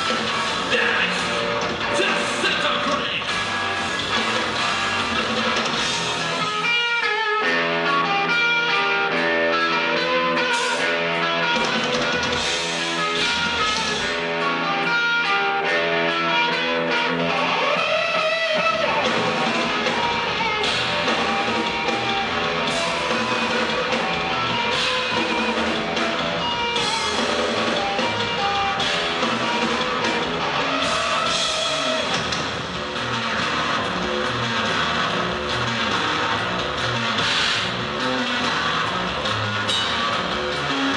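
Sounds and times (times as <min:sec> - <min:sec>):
drums: 0:00.0 - 0:40.9
loud electric guitar: 0:00.0 - 0:40.9.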